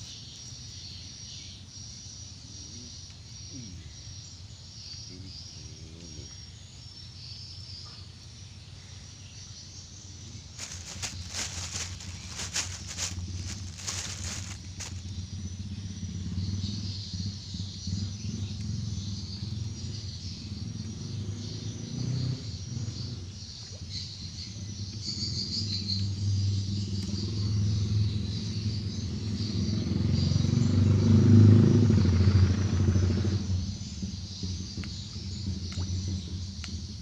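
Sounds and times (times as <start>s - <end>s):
insects trilling: 0.0s - 37.0s
low droning hum: 9.9s - 16.4s.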